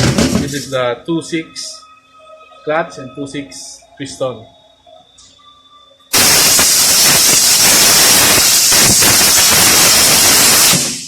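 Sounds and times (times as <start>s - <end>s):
air blow gun hissing: 6.1s - 11.0s.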